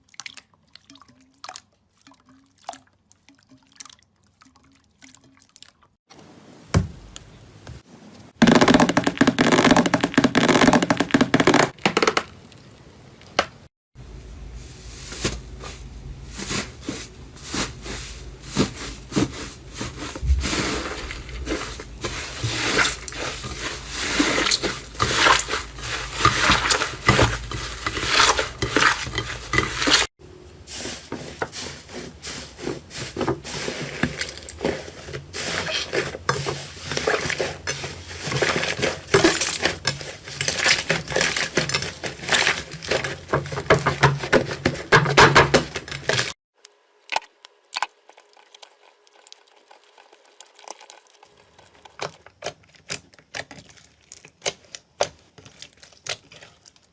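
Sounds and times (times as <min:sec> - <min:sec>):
slime squishing with crackling pops: 0:50.4 - 0:56.9.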